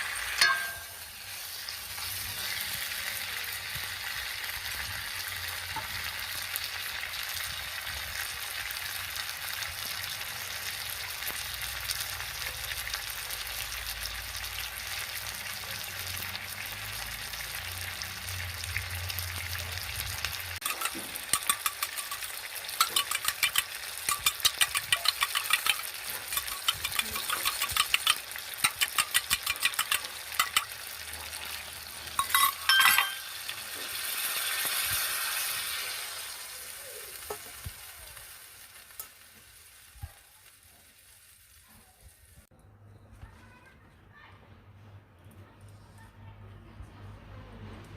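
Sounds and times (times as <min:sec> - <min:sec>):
metal spoon scraping a pan: 0:00.0 - 0:02.6, 0:20.6 - 0:31.0, 0:31.9 - 0:34.8
chicken sizzling in a pan: 0:00.0 - 0:42.5
spoon clinks: 0:00.4 - 0:01.0, 0:20.6 - 0:30.8, 0:32.2 - 0:33.4.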